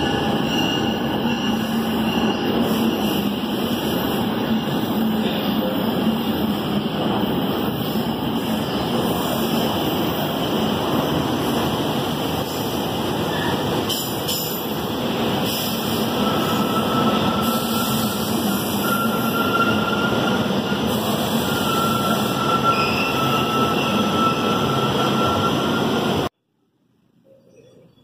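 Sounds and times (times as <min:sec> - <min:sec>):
train wheels rumbling on rail: 0:00.0 - 0:26.4
faint high squeal: 0:21.4 - 0:26.0.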